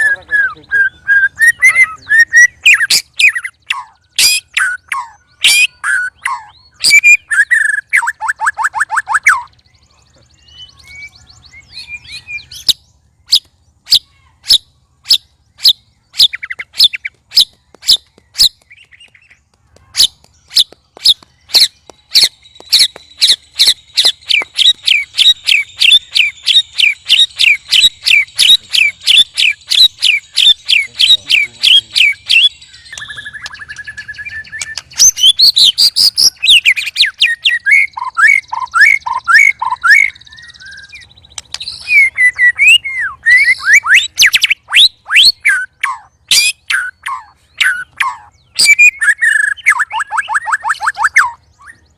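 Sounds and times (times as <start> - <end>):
bird calling sharp repeated notes: 0.0 - 51.9
bird song burst: 0.0 - 51.9
held bird whistle: 19.9 - 51.9.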